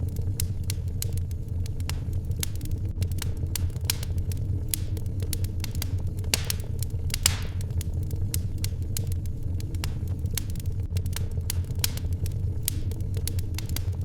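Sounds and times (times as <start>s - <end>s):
fire hissing flare: 0.0s - 13.9s
wood fire crackling: 0.0s - 14.0s.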